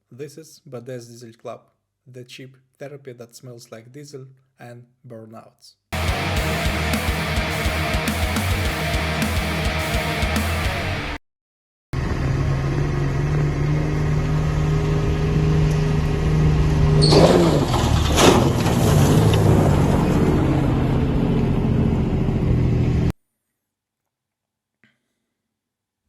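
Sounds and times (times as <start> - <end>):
truck engine running: 6.0 - 11.1, 12.0 - 18.1, 19.3 - 23.1.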